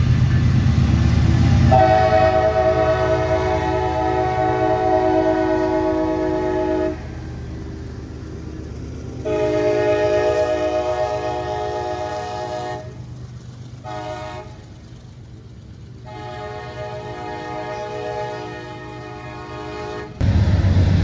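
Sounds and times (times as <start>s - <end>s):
passing train rumble: 0.0s - 21.0s
locomotive air horn blasts: 1.6s - 7.2s, 9.2s - 13.0s, 13.8s - 14.6s, 16.0s - 20.3s.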